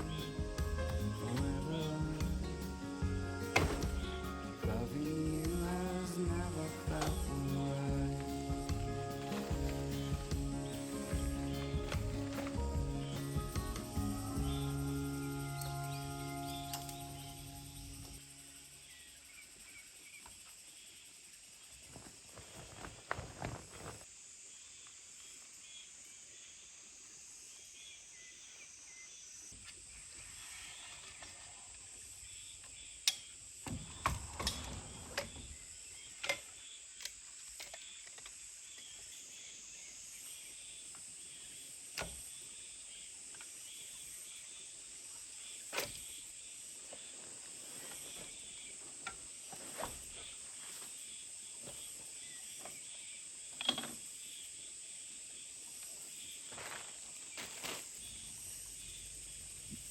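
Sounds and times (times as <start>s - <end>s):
high insect drone: 0.0s - 59.9s.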